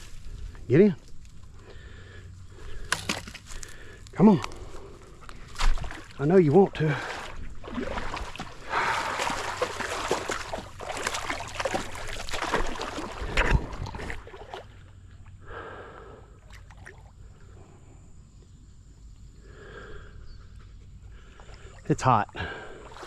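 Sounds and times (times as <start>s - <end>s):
water splashing and sloshing: 4.6s - 15.1s, 16.4s - 17.5s, 21.2s - 23.0s
water lapping: 4.7s - 15.0s, 21.1s - 23.0s.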